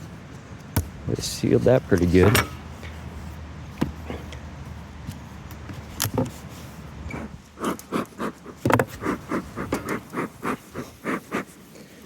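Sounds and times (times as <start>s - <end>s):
wooden boxes knocking and scraping: 8.6s - 9.1s.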